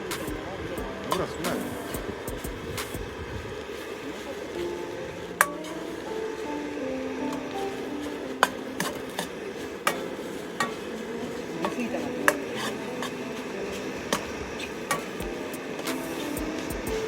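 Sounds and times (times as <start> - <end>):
food sizzling: 0.0 - 17.0
spatula scraping and knocking pan: 8.5 - 13.5.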